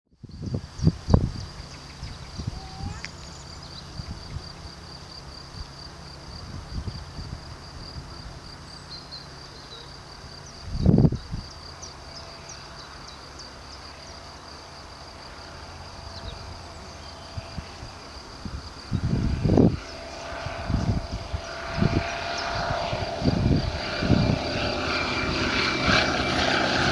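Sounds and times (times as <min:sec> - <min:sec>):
low outdoor rumble: 0:10.3 - 0:26.9.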